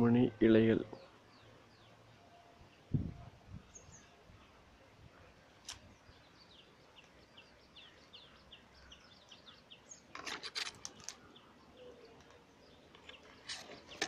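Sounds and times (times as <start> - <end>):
sharp clicks: 5.6 - 5.8.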